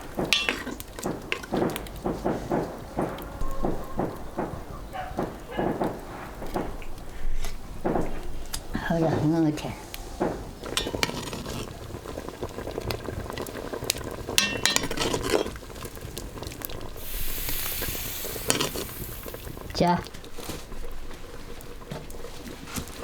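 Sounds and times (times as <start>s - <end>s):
utensil scraping metal pan: 0.3s - 1.8s, 10.6s - 11.8s, 17.0s - 19.6s
hot pan hissing: 9.8s - 23.0s.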